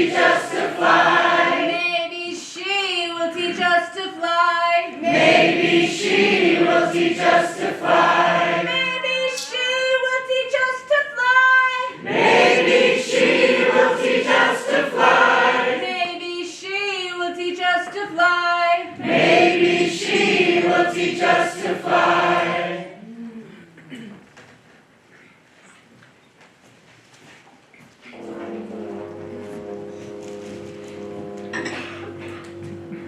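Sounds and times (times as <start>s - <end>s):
opera chorus singing: 0.0s - 2.4s, 4.8s - 10.3s, 11.8s - 16.6s, 18.8s - 23.0s.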